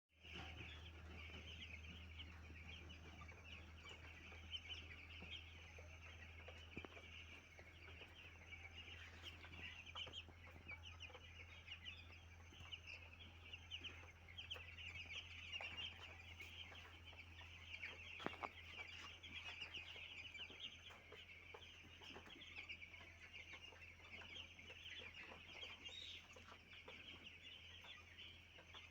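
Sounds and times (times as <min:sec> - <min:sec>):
chicks peeping: 0:00.2 - 0:28.9
low steady hum: 0:00.2 - 0:28.9.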